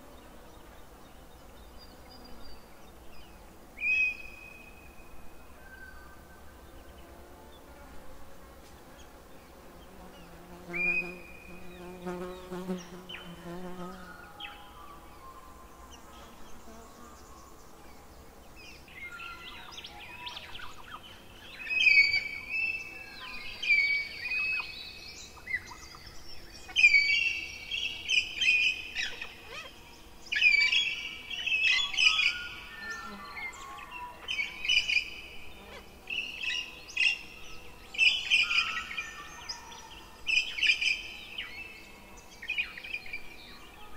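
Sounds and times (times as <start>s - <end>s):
low buzzing bird call: 0.0s - 43.9s
birds chirping and trilling: 8.9s - 43.9s.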